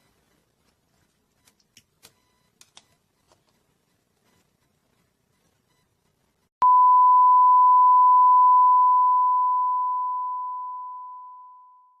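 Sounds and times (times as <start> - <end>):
electronic beep tone: 6.6 - 11.9.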